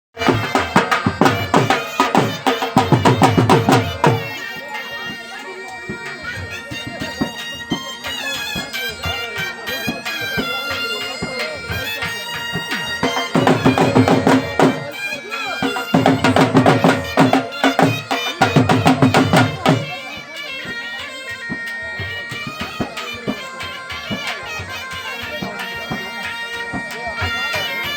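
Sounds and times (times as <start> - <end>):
drum strokes: 0.2 - 4.4, 12.1 - 14.9, 15.6 - 19.9
bagpipe melody: 0.2 - 27.9.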